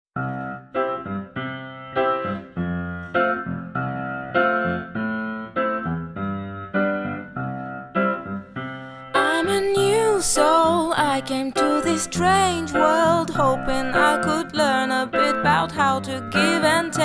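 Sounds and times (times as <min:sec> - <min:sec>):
gentle piano notes and chords: 0:00.2 - 0:17.0.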